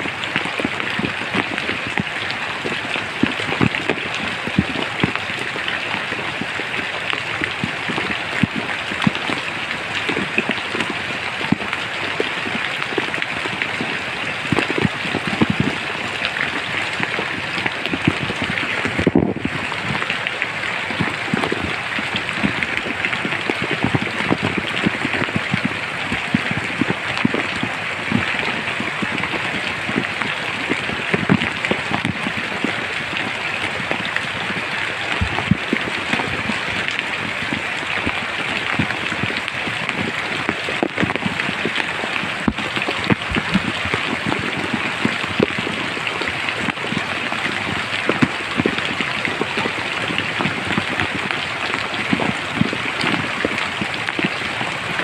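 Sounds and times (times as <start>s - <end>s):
rain falling: 0.0s - 55.0s
raindrops striking nearby: 0.0s - 55.0s.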